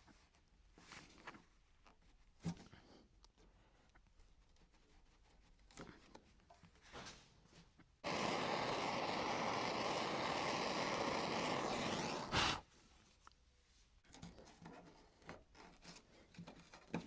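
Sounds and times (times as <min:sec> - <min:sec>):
heating tool rushing hiss: 0:08.0 - 0:12.6.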